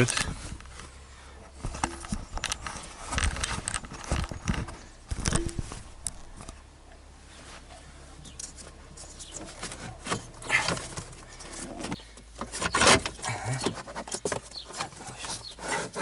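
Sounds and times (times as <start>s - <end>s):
hard plastic knocking and scraping: 9.2s - 16.0s.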